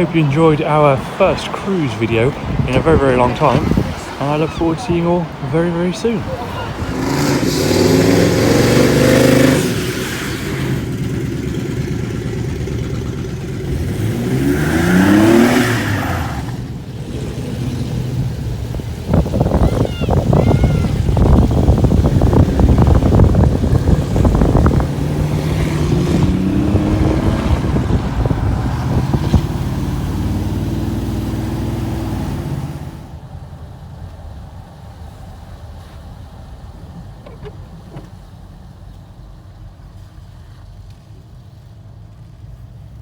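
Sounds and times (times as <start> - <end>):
car engine revving: 0.0 - 19.6, 21.0 - 33.1.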